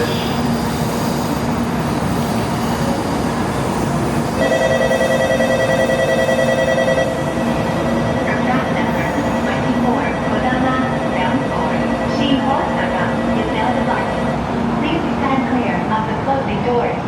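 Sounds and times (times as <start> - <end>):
station noise: 0.0 - 17.0
train humming: 0.0 - 17.0
electronic platform warning tone: 4.4 - 15.3.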